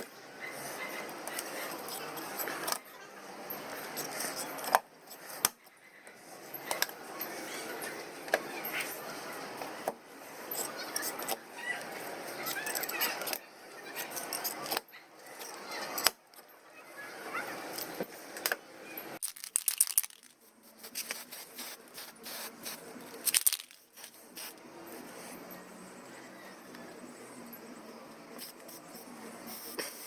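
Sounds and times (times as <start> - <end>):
small hard objects clicking: 19.2 - 21.2, 23.1 - 23.9.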